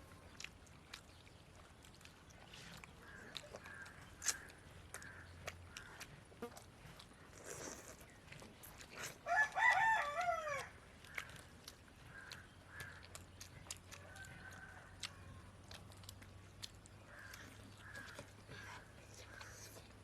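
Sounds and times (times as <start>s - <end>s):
rooster crowing: 9.2s - 10.7s.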